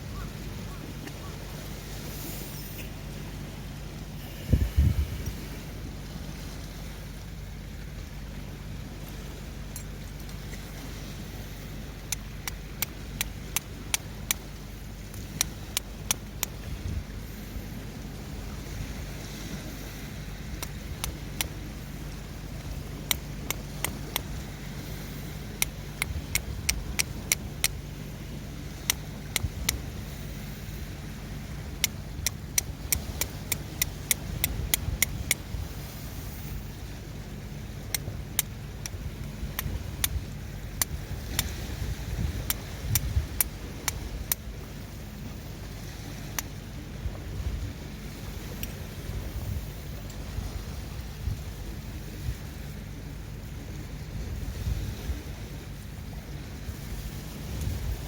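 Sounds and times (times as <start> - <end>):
steady low hum: 0.0 - 58.0
steady low rumble: 0.0 - 58.0
flint and steel clicks: 15.0 - 16.6, 23.0 - 24.3, 31.8 - 35.5, 40.8 - 41.6, 42.4 - 44.4.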